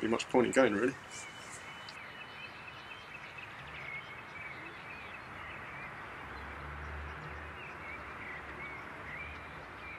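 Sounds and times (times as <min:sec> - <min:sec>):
steady background hiss: 0:00.0 - 0:03.3
birds chirping warbling calls: 0:00.0 - 0:09.9.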